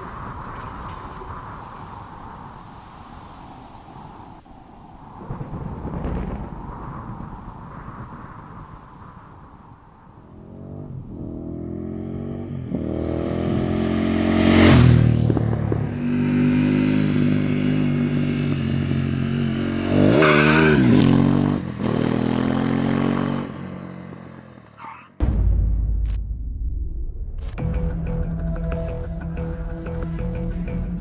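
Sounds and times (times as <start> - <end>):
motorcycle engine accelerating: 10.3 - 24.6
sudden low boom: 25.2 - 29.9.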